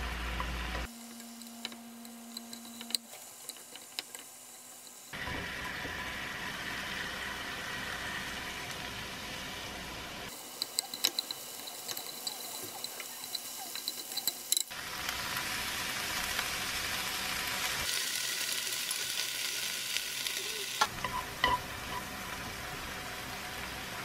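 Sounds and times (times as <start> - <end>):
meat and onion frying in pan: 0.0 - 24.0
chopsticks clicking against pan: 10.5 - 14.7.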